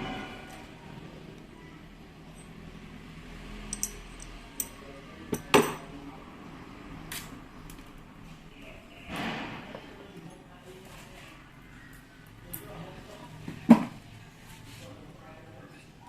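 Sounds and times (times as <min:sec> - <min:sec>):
metal tools clicking and clinking: 0:03.6 - 0:05.9.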